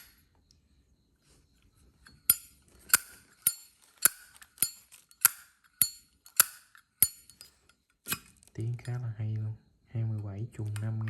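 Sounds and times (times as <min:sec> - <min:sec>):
lighter lid clicking open and shut: 0:06.4 - 0:06.6.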